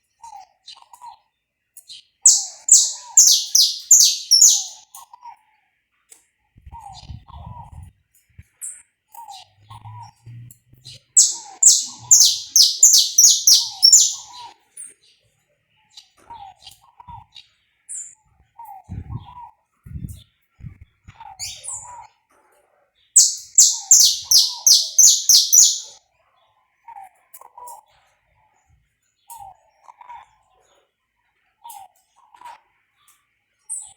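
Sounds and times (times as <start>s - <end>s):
faint short chirps: 2.3s - 4.8s, 11.2s - 14.3s, 23.2s - 25.9s
finch song bursts: 2.3s - 4.8s, 11.2s - 14.3s, 23.2s - 25.9s.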